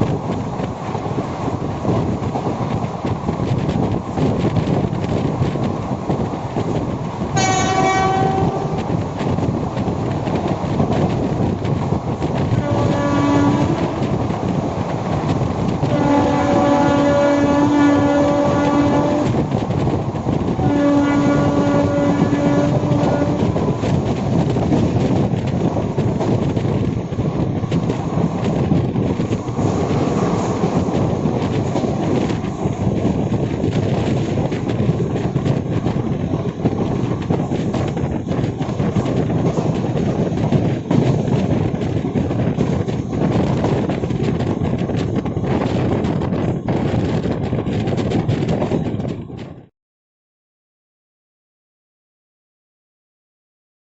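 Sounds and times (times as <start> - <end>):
train wheels clattering on rails: 0.0 - 49.6
locomotive horn blasts: 7.4 - 8.9, 12.5 - 14.1, 15.8 - 19.4, 20.6 - 23.7.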